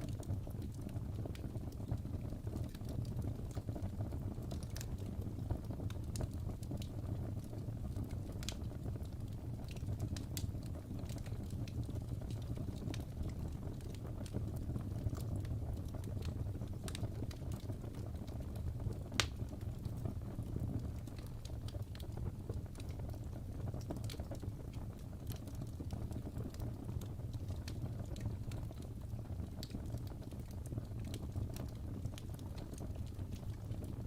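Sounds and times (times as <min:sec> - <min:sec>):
fire crackling: 0:00.0 - 0:34.0
logs popping and snapping: 0:19.2 - 0:19.5.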